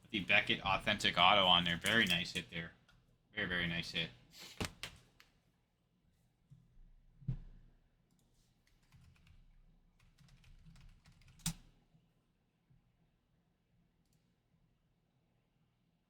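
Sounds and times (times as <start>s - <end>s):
typing on computer keyboard: 8.7s - 11.7s.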